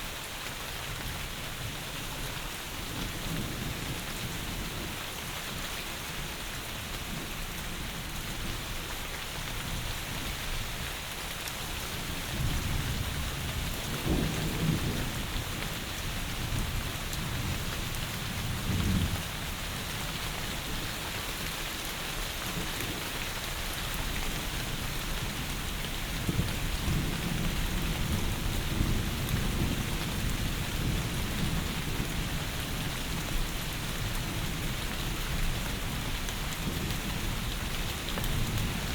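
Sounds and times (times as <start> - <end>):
heavy rain falling: 0.0 - 38.9
low thunder rumbling: 12.3 - 19.5.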